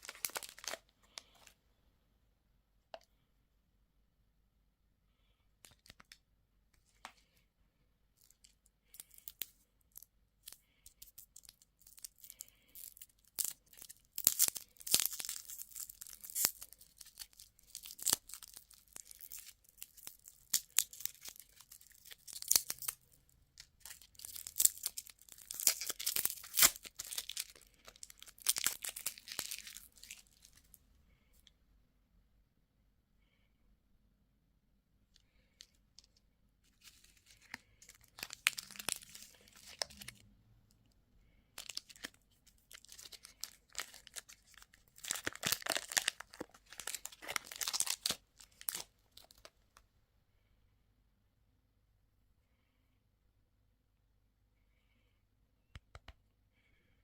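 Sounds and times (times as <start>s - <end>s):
candy wrapper crinkling: 0.0s - 1.6s, 8.2s - 30.8s, 35.3s - 40.2s, 41.6s - 49.8s.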